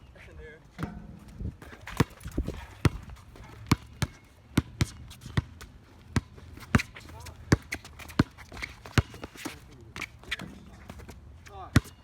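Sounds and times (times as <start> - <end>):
basketball bouncing on hard court: 0.8 - 11.0.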